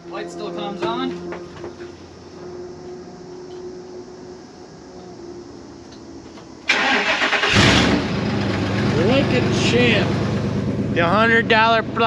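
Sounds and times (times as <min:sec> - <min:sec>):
truck engine cranking and starting: 0:05.9 - 0:12.0.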